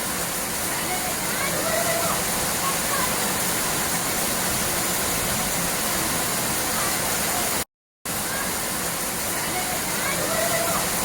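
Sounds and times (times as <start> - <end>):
falling water rushing: 0.0 - 11.0.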